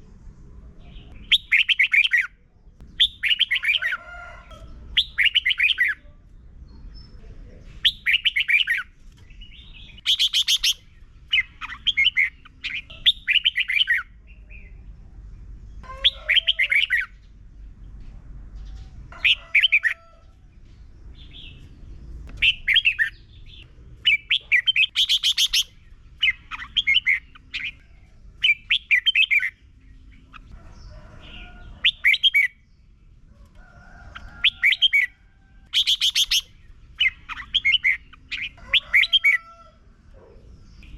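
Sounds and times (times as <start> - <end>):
bird singing warbled phrases: 0.6 - 17.7, 18.6 - 20.3, 21.0 - 39.5, 40.1 - 40.9
faint low rumble: 16.8 - 19.3, 20.2 - 24.9.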